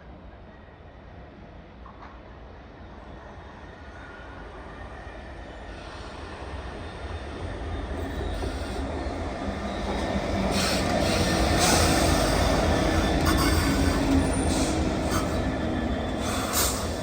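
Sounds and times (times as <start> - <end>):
train rumble: 5.6 - 17.0
wheels hissing on rails: 5.6 - 17.0.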